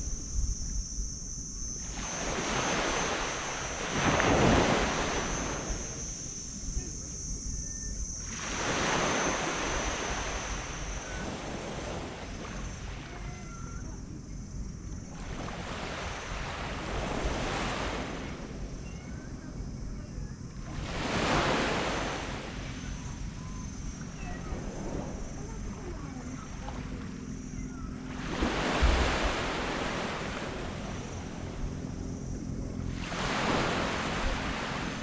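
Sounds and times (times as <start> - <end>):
sea waves breaking on beach: 1.7 - 6.5, 8.2 - 13.2, 15.1 - 18.6, 20.7 - 23.4, 28.1 - 31.7, 32.8 - 35.0.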